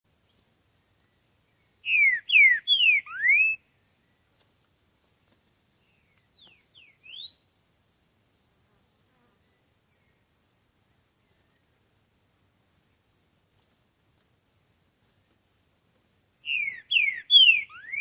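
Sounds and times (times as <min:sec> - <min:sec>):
faint high insect buzz: 0:00.1 - 0:18.0
bird whistling song: 0:01.8 - 0:03.7, 0:05.9 - 0:07.5, 0:16.4 - 0:18.0.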